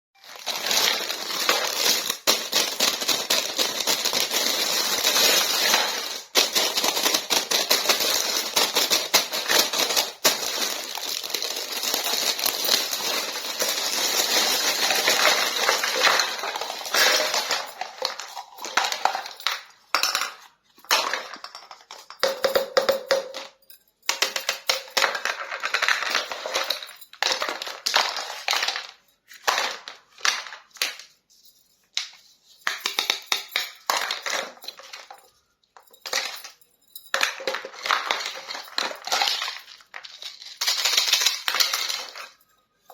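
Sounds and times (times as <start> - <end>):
plastic packaging crinkling: 0.2 - 18.7.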